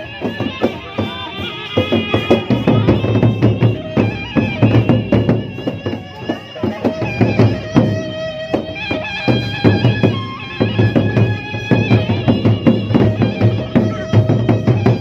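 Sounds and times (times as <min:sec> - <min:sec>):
bamboo flute melody: 0:00.0 - 0:15.0
large drums beaten fast: 0:00.0 - 0:15.0.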